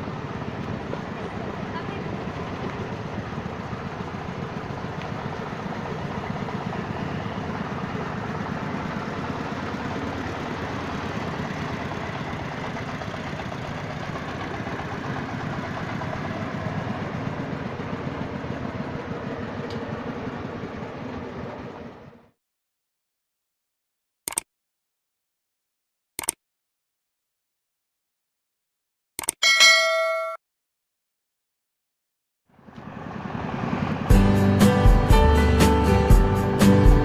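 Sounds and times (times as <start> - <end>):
diesel engine running: 0.0 - 22.4, 32.5 - 37.0.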